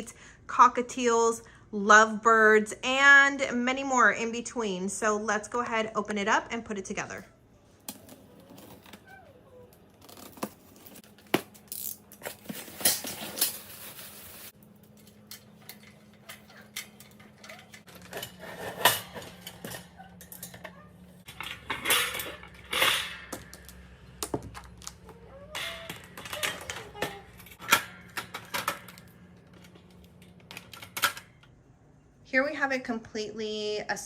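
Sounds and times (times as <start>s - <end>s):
metal cage parts clinking: 14.8s - 24.0s, 24.6s - 31.4s.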